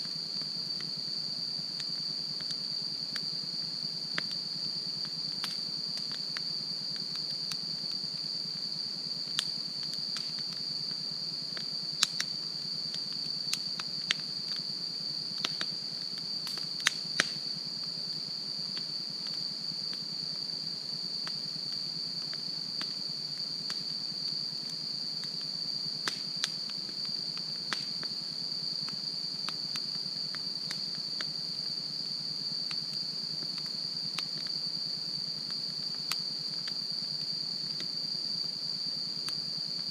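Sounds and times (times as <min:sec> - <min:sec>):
high-pitched insect trill: 0:00.0 - 0:39.9
wood fire crackling and popping: 0:04.1 - 0:08.6, 0:09.2 - 0:17.5, 0:21.2 - 0:23.0, 0:23.6 - 0:24.0, 0:24.6 - 0:28.2, 0:28.8 - 0:31.3.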